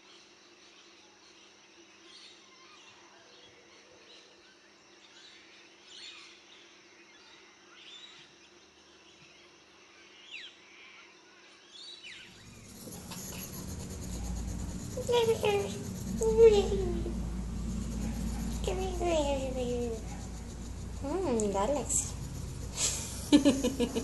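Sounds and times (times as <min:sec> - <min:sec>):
steady background hum: 0:12.3 - 0:24.0
loud rushing noise: 0:12.4 - 0:24.0.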